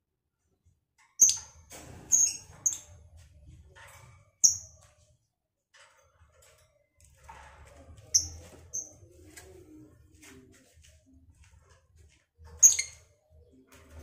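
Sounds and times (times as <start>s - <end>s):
soft squeaky bird chatter: 1.1s - 3.1s, 3.8s - 5.2s, 6.7s - 14.0s.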